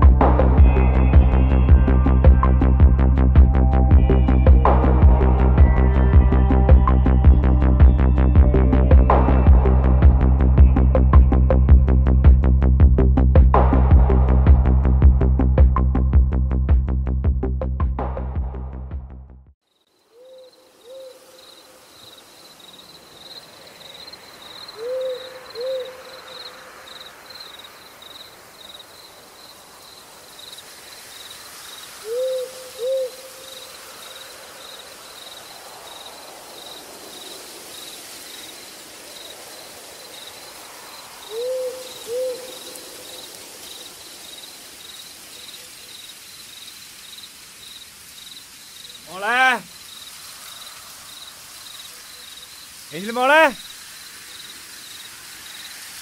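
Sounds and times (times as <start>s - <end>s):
pulsing insect trill: 19.7s - 56.0s
bird hooting: 20.1s - 21.8s, 24.4s - 27.0s, 32.0s - 33.8s, 41.2s - 43.4s.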